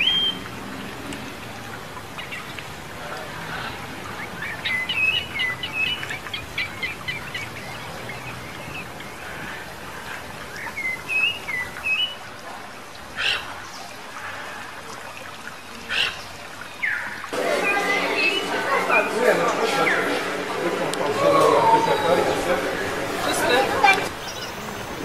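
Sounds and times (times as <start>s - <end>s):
birds chirping: 2.0s - 12.2s, 15.5s - 25.0s
forest hiss: 17.3s - 25.0s.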